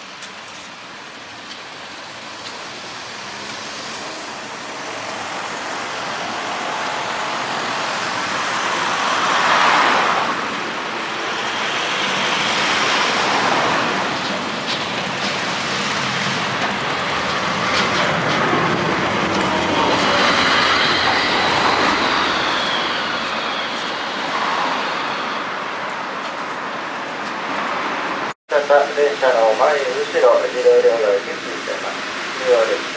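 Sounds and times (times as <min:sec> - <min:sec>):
streetcar rumbling on rails: 0:00.0 - 0:32.9
faint high whine: 0:20.3 - 0:25.6.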